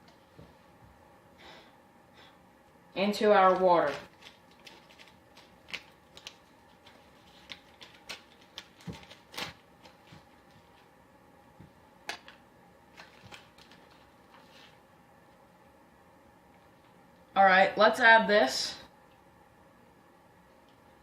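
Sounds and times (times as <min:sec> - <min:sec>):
powder packet clicks and rustles: 0:03.5 - 0:10.9, 0:12.1 - 0:14.4.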